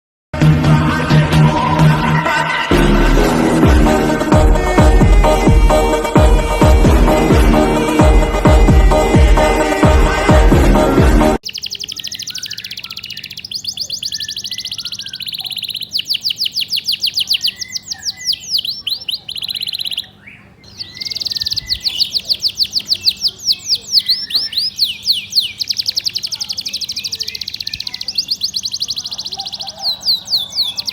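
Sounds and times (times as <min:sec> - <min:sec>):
canary singing trills: 0:11.4 - 0:30.9.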